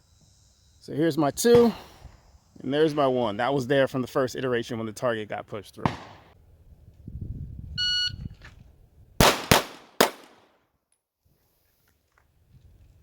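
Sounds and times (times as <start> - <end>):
pistol shots: 5.8 - 6.4, 9.2 - 10.5
shot timer beep: 7.8 - 8.2.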